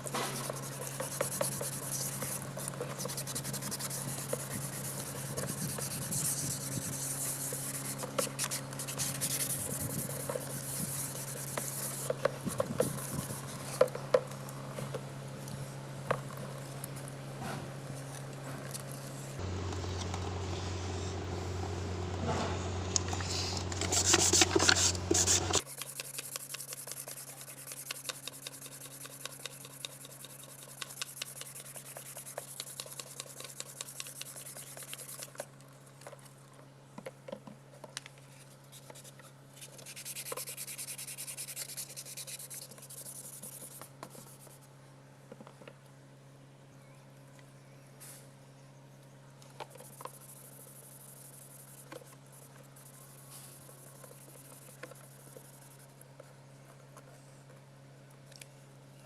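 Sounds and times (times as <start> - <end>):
sandpaper rubbing plastic: 0.0 - 13.9, 23.0 - 35.4, 38.8 - 44.6
steady low hum: 0.0 - 37.2.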